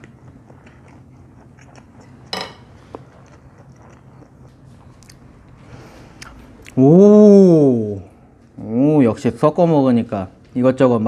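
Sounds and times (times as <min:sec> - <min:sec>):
person chewing noodles: 0:00.0 - 0:06.9.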